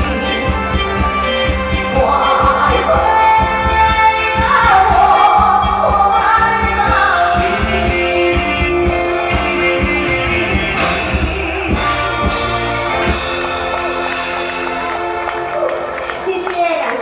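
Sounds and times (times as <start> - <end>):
person singing: 0.0 - 12.6
drum beats: 0.0 - 17.0
live band playing: 0.0 - 17.0.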